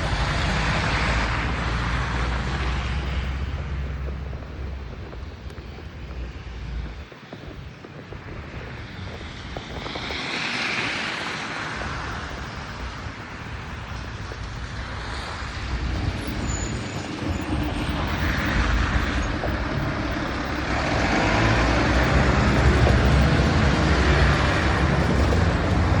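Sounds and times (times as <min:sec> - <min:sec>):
vehicles passing: 0:00.0 - 0:26.0
low rumble: 0:13.9 - 0:26.0.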